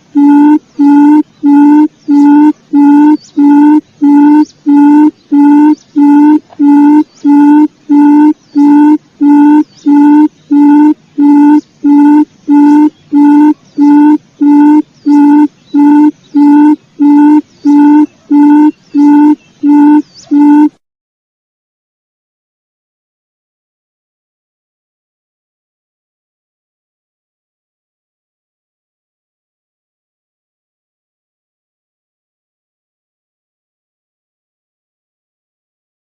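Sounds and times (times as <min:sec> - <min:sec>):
quail call hooting: 0:00.2 - 0:20.8.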